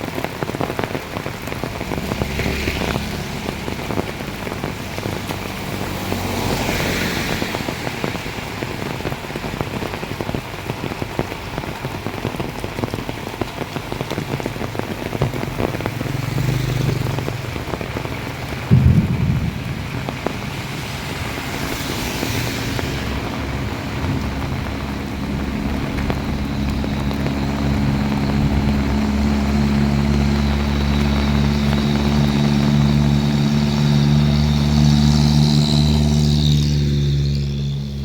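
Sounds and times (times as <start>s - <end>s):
heavy rain pouring: 0.0s - 38.0s
low rumble: 17.6s - 33.4s
loud low thump: 18.7s - 22.0s.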